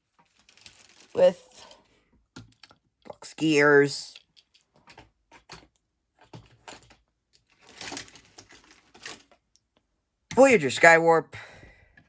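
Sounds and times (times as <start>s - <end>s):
plastic figures clicking and tapping: 1.7s - 10.6s.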